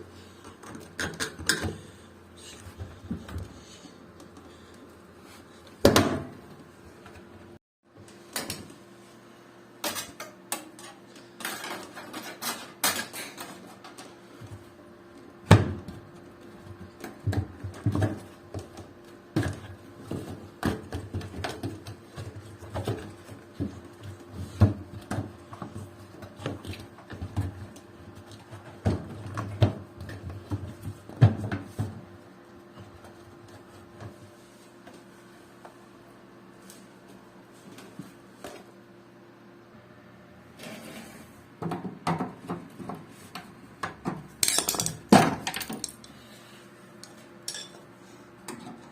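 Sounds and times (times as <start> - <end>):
tools and parts clattering: 9.8 - 14.1, 44.4 - 46.2, 47.5 - 47.8.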